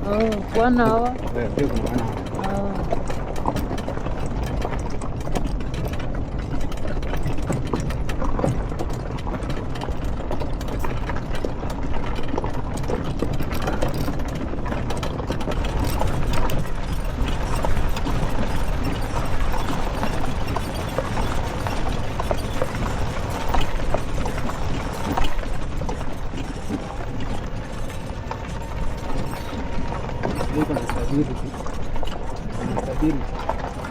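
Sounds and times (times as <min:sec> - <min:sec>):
quad bike engine running: 0:00.0 - 0:33.9
small rattles and knocks: 0:00.0 - 0:33.9.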